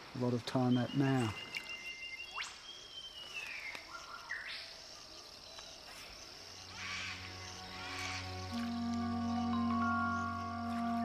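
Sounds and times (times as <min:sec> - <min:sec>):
insects chirping: 0:00.0 - 0:11.0
soft ambient music: 0:05.5 - 0:11.0
gliding bird calls: 0:06.6 - 0:11.0.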